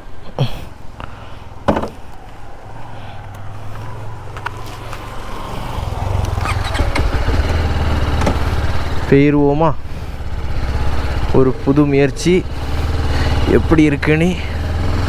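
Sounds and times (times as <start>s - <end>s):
knocks: 1.7s - 2.0s
motorcycle engine idling: 3.8s - 15.0s.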